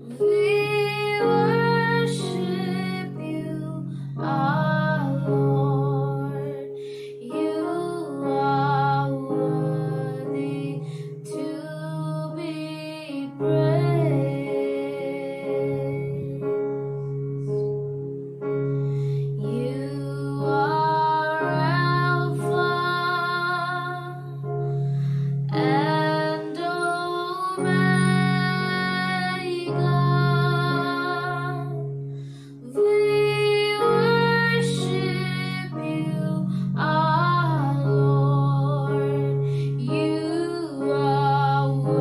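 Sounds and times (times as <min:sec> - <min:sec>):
person singing long notes: 0:25.5 - 0:32.0.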